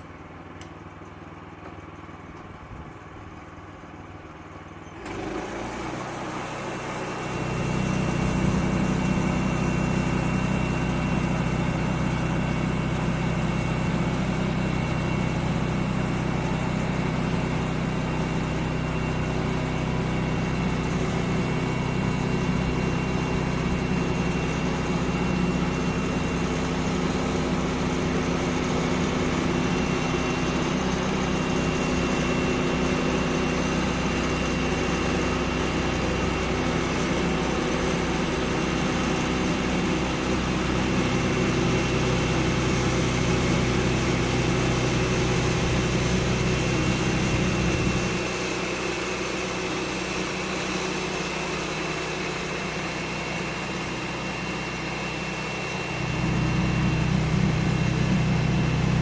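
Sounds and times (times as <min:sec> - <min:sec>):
sawmill engine humming: 0:05.0 - 0:59.0.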